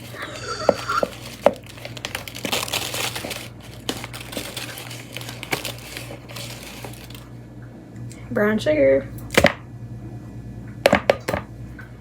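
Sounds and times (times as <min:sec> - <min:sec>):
sugar crackling crunch: 0:00.0 - 0:07.4.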